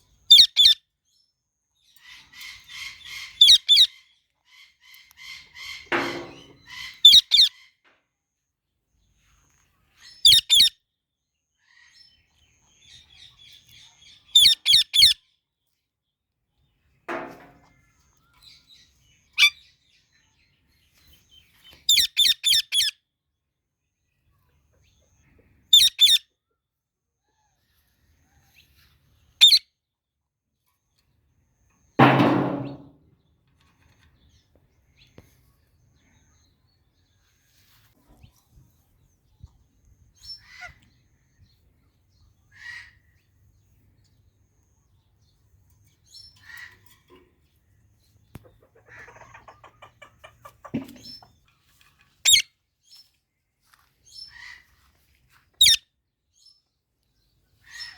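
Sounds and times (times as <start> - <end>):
parrot chirps: 0.3 - 0.8, 2.1 - 4.0, 6.6 - 7.6, 10.2 - 10.7, 14.3 - 15.2, 21.9 - 22.9, 25.7 - 26.2, 29.4 - 29.6, 52.2 - 52.5, 55.6 - 55.8
parrots calling: 0.3 - 0.8, 2.1 - 3.9, 25.7 - 26.2, 52.3 - 52.5, 55.6 - 55.8.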